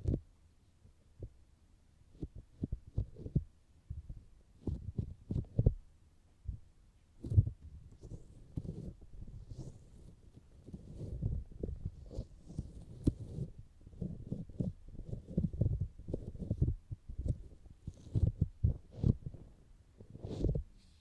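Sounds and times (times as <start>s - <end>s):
fingers tapping microphone: 10.6s - 19.5s.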